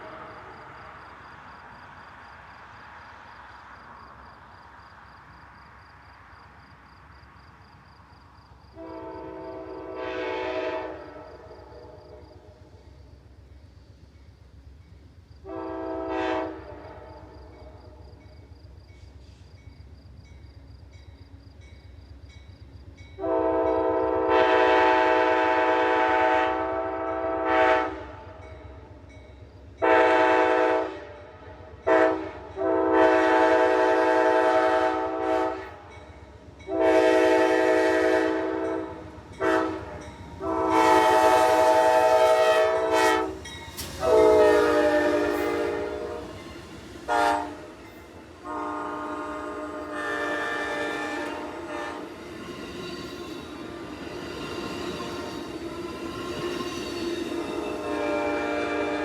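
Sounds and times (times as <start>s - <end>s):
low rumble of train: 0.0s - 59.0s
train air horn blasts: 8.7s - 12.8s, 15.4s - 18.0s, 23.2s - 28.5s, 29.8s - 35.9s, 36.6s - 52.2s, 53.5s - 59.0s.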